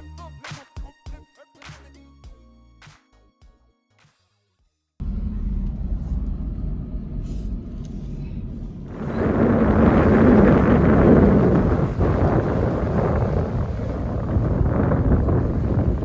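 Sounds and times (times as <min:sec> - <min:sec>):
engine and tyres rumbling: 0:05.0 - 0:16.0
rushing noise: 0:05.0 - 0:16.0.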